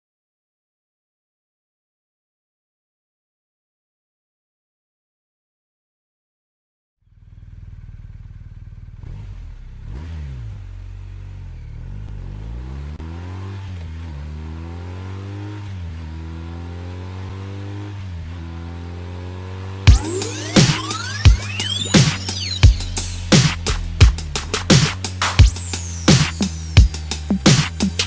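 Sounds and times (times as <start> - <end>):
motorcycle engine accelerating: 7.1 - 28.0.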